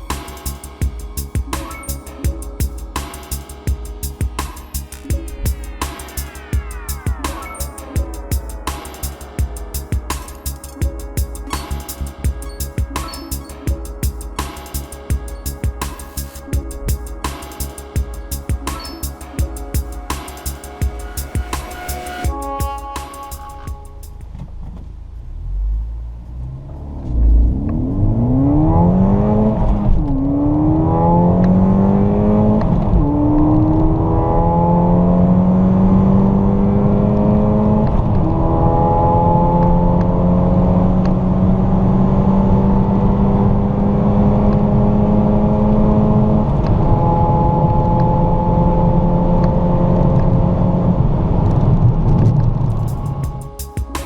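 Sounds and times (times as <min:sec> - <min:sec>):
car engine accelerating: 0:11.5 - 0:53.3.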